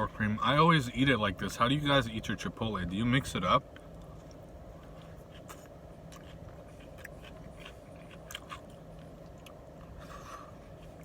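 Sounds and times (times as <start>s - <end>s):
low steady hum: 0.0s - 11.0s
person chewing food: 3.7s - 11.0s.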